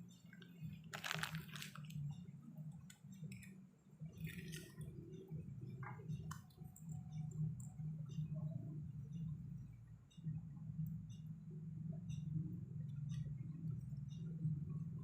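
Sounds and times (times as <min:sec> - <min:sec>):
small clicks and scrapes of handling: 0:02.8 - 0:03.6.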